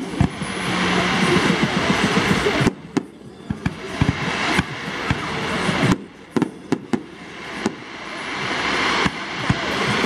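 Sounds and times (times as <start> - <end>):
fireworks crackling: 0.0 - 10.0.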